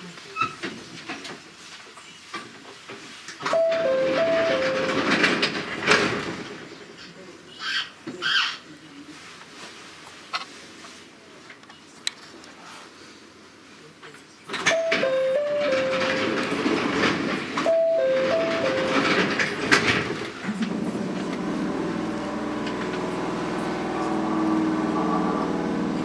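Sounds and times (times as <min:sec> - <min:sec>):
low hum of train equipment: 0:00.0 - 0:26.0
four-note electronic chime: 0:03.6 - 0:05.0.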